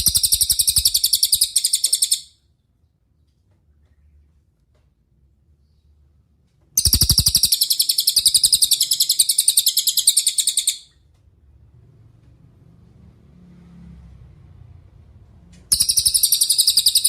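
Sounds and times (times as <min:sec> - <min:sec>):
songbird high-pitched trill: 0:00.0 - 0:02.3, 0:06.8 - 0:10.9, 0:15.7 - 0:17.0.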